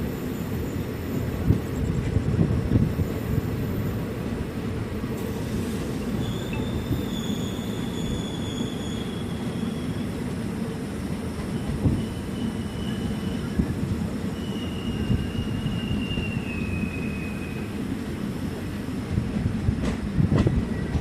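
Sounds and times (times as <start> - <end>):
train wheels rumbling: 0.0 - 21.0
high wheel squeal: 5.6 - 10.2, 11.5 - 17.9.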